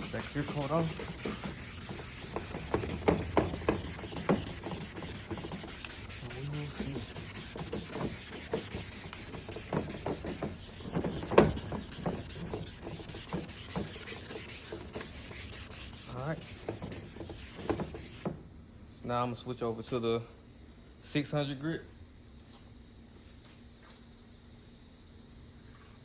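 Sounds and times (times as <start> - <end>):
hand sanding rubbing strokes: 0.0 - 18.4.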